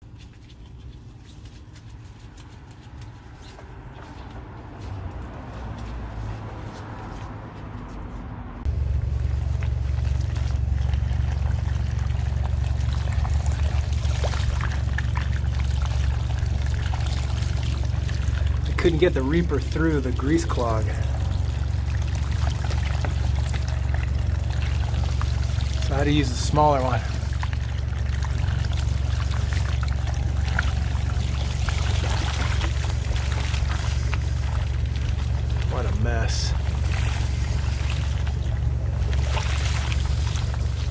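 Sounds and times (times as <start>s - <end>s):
water pouring and splashing: 0.0s - 7.4s, 8.7s - 40.9s
hydrojetter droning: 8.6s - 40.9s.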